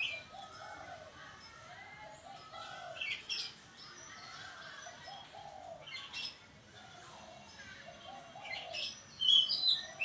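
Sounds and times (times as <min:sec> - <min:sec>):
bird chirping: 0:00.0 - 0:06.5, 0:07.5 - 0:10.0
dove cooing: 0:04.4 - 0:06.2, 0:07.2 - 0:09.0.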